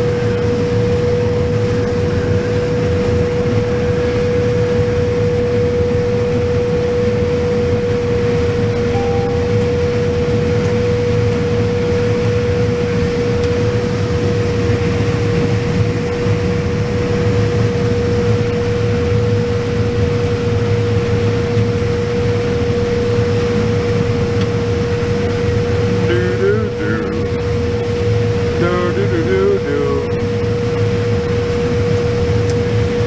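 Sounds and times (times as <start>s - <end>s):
steady machine whine: 0.1s - 12.8s, 25.6s - 31.0s
combine harvester rumbling: 25.4s - 30.5s.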